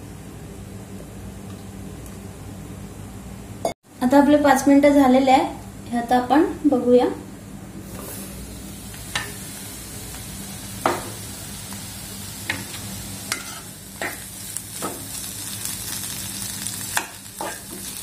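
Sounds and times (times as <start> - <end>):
food sizzling in oil: 7.8 - 18.0
spoon striking a pan: 10.8 - 11.2, 13.3 - 15.1, 16.9 - 17.9.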